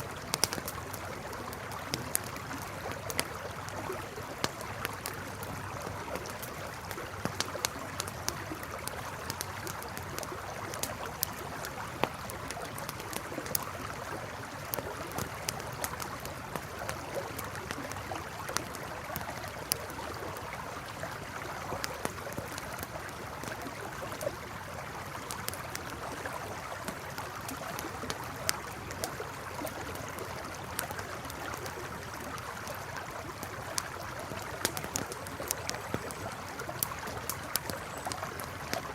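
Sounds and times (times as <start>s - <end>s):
campfire crackling and popping: 0.0s - 38.9s
river flowing: 0.0s - 38.9s.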